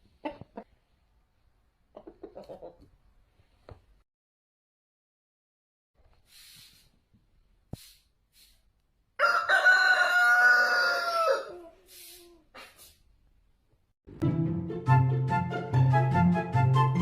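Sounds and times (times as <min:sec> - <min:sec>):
rooster crowing: 0:09.2 - 0:11.7.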